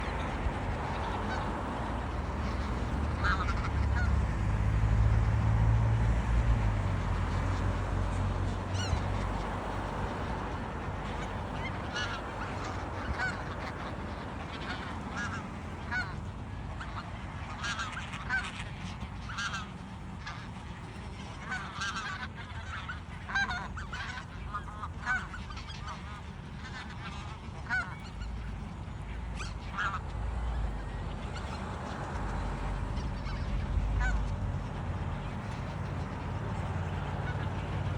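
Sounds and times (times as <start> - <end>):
geese honking: 0.0 - 37.9.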